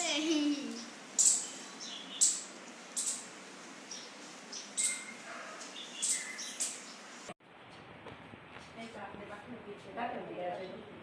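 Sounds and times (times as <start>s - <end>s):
birds chirping: 0.0s - 7.3s
steady background hiss: 0.0s - 7.4s.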